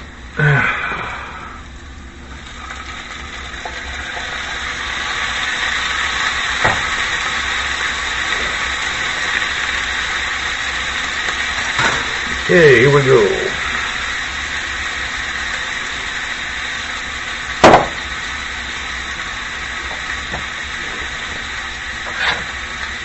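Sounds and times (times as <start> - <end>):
onions sizzling in skillet: 0.0 - 23.0.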